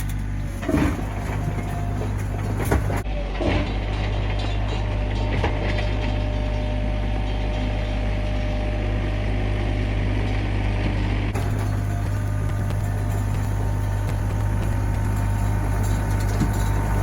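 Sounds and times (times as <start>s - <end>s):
mini excavator engine drone: 0.0s - 17.0s
machine knocks: 11.4s - 17.0s.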